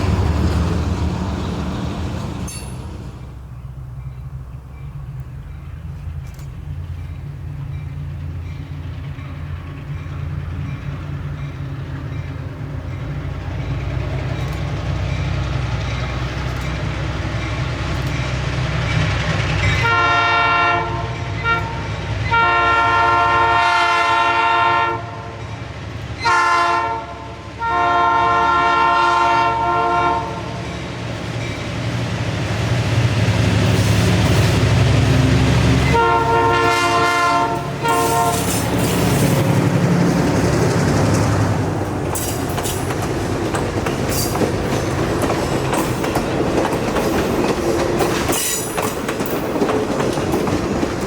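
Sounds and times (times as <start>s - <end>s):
locomotive engine rumbling: 0.0s - 51.0s
train air horn: 19.8s - 25.4s, 26.2s - 30.5s, 35.8s - 39.4s.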